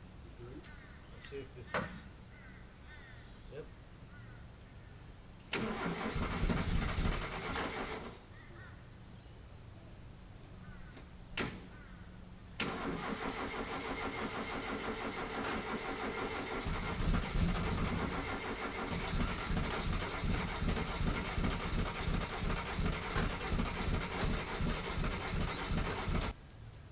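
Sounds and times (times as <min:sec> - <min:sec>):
pickup engine starting and running: 0:05.5 - 0:08.2, 0:12.6 - 0:26.4.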